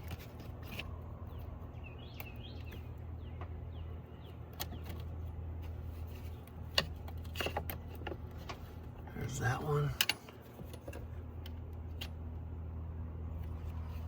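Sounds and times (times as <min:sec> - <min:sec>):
steady low hum: 0:00.0 - 0:14.0
birds chirping: 0:00.8 - 0:06.8.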